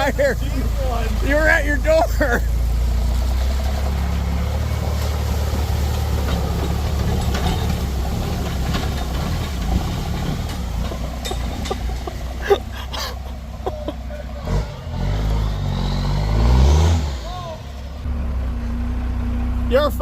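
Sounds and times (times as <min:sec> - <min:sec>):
truck engine rumbling: 0:00.0 - 0:20.0
faint knocks and rattles: 0:05.4 - 0:13.2.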